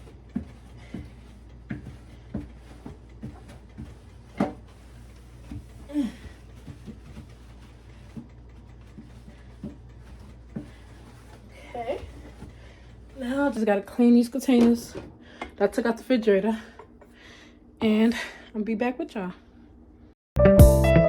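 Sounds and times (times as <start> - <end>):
knocks and bumps from handling things: 0.3 - 4.7.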